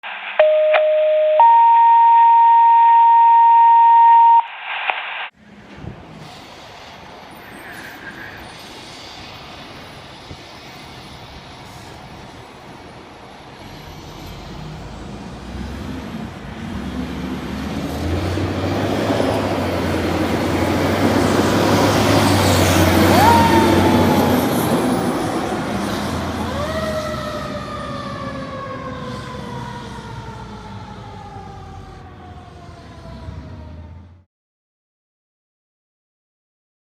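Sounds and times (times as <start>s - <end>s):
siren whoop and wail: 0.4s - 4.5s, 22.9s - 25.3s, 26.3s - 34.0s
fire engine passing: 5.4s - 34.2s.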